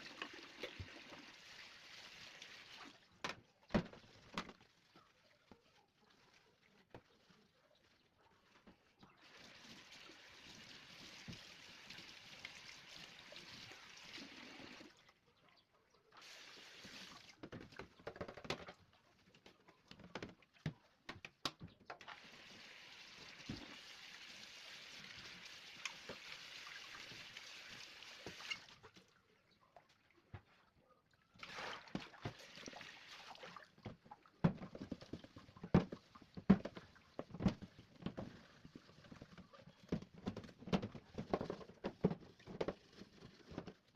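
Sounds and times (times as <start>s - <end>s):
tap water running into sink: 9.2s - 14.9s, 22.0s - 28.7s.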